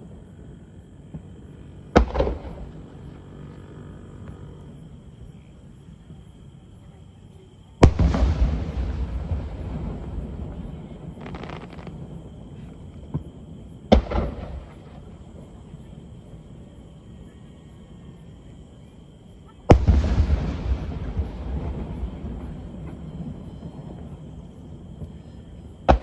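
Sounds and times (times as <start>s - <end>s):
fireworks booming: 1.0s - 4.7s, 7.8s - 15.5s, 19.7s - 26.0s
fireworks crackle: 7.8s - 12.8s.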